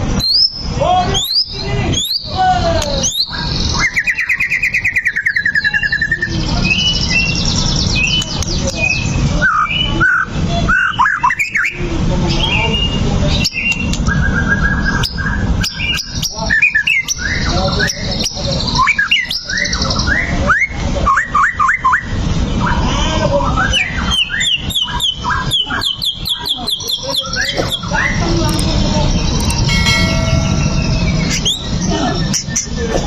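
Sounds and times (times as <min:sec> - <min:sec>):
bird singing whistled song: 0:00.2 - 0:02.3, 0:12.7 - 0:22.1, 0:23.8 - 0:28.2
steady low background noise: 0:26.0 - 0:33.0.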